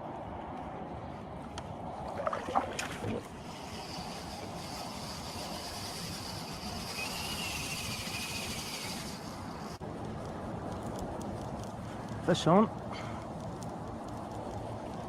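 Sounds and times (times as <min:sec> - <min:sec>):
water rushing around kayak: 0:01.8 - 0:09.6.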